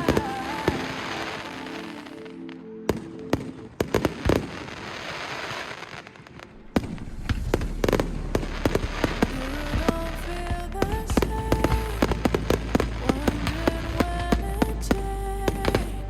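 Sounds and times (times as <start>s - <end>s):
low rumble: 6.5s - 16.0s.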